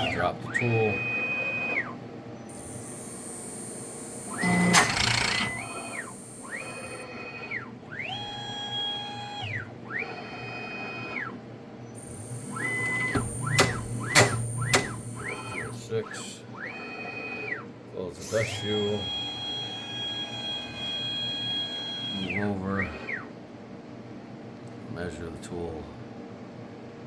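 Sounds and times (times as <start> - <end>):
stepper motors whining: 0.0 - 11.3, 11.9 - 17.6, 18.2 - 23.3
sharp clicks: 4.4 - 5.6, 12.8 - 15.6.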